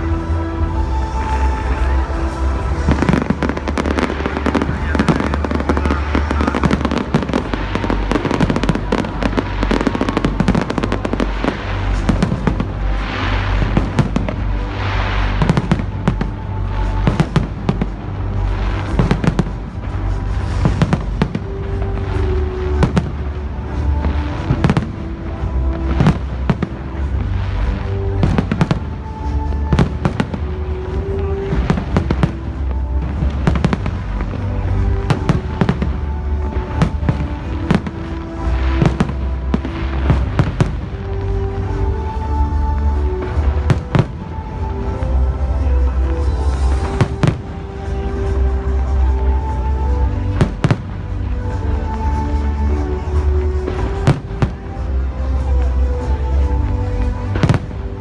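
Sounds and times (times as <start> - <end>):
fireworks bangs and crackles: 0.0 - 58.0
loud music with heavy bass: 0.0 - 58.0.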